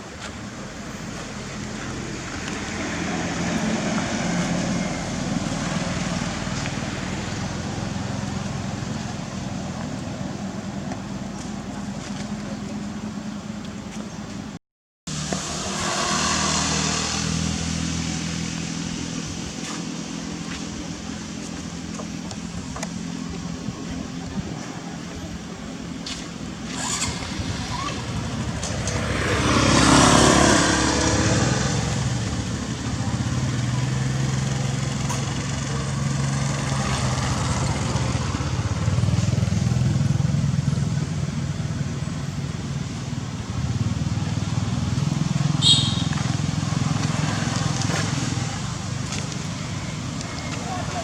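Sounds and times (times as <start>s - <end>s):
vehicle engine humming: 0.0s - 51.0s
small engine running: 15.1s - 18.1s, 26.6s - 41.0s.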